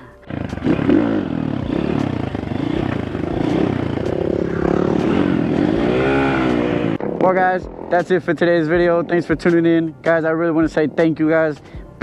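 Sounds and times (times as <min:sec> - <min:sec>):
pit bike engine revving: 0:00.2 - 0:09.3.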